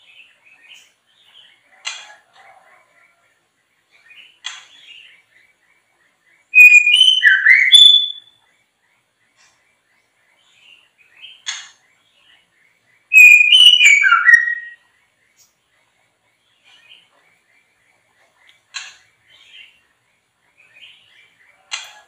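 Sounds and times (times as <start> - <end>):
songbird whistled phrases: 6.5 - 8.3, 13.1 - 14.8.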